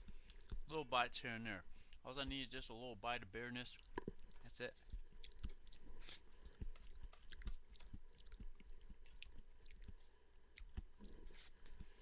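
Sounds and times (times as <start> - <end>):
person chewing crunchy food: 0.0 - 0.7, 3.8 - 12.0.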